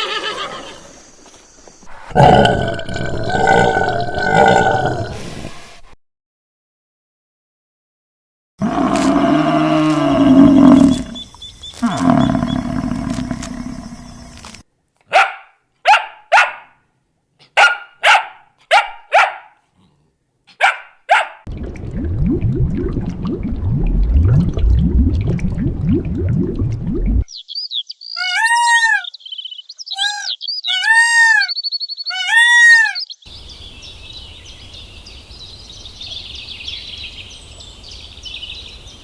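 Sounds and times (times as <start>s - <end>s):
animal roar: 2.1s - 5.2s, 8.6s - 11.2s, 11.8s - 14.3s
dog barks: 15.0s - 16.8s, 17.4s - 19.7s, 20.5s - 21.5s
low rough rumbling: 21.5s - 27.2s.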